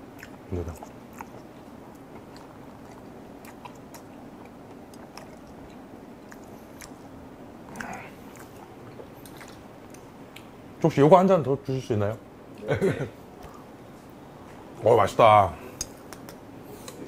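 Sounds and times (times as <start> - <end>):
wet mouth clicks and chewing: 0.2 - 7.0, 7.7 - 10.5.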